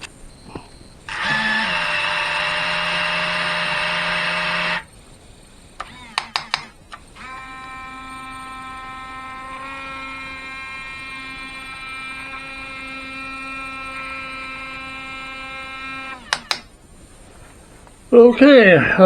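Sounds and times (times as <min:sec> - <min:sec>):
small electric motor whining: 0:00.0 - 0:17.6
sharp clicks: 0:05.8 - 0:07.4, 0:09.6 - 0:16.8.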